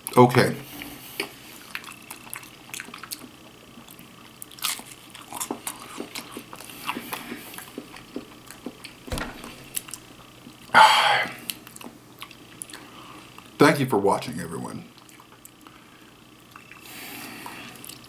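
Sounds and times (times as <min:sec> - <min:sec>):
person chewing crunchy food: 0:01.2 - 0:09.0.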